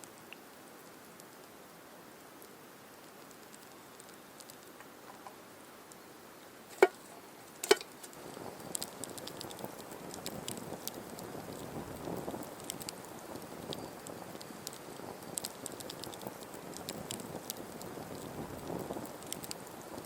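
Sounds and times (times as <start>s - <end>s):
campfire hissing and crackling: 0.0s - 20.0s
sharp knocks: 6.7s - 7.0s.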